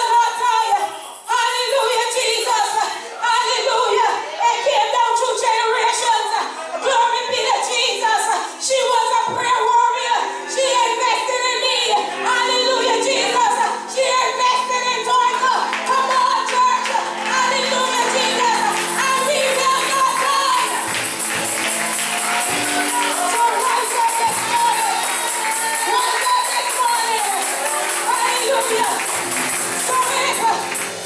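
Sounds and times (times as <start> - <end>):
tambourine shaken in rhythm: 0.0 - 3.1, 15.7 - 31.0
gospel singing: 10.2 - 31.0.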